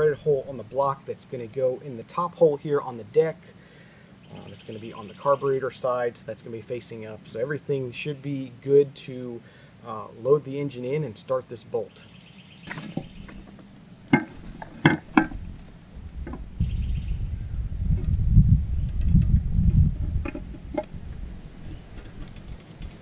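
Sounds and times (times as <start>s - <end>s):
birds chirping: 0.0s - 23.0s
metal clicks and knocks: 12.7s - 15.4s, 20.2s - 20.9s
low rumble: 15.3s - 21.8s.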